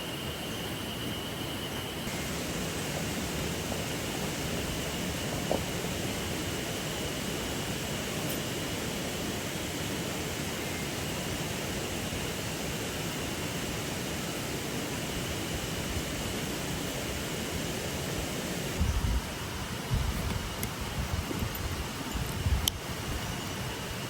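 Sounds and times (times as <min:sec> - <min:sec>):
river water rushing: 0:02.1 - 0:18.8
wind rumble on microphone: 0:15.1 - 0:24.0.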